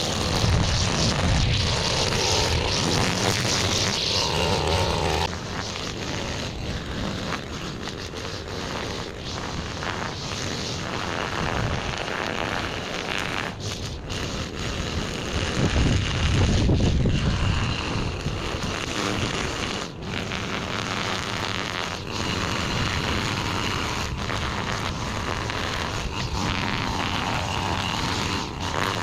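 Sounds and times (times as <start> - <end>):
small gasoline yard tool engine: 0.0 - 29.0.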